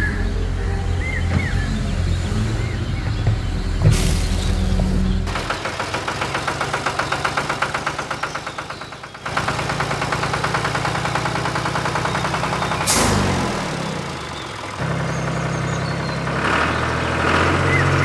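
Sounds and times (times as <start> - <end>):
small engine chugging: 0.0 - 18.0
loud burst of noise: 3.8 - 10.4.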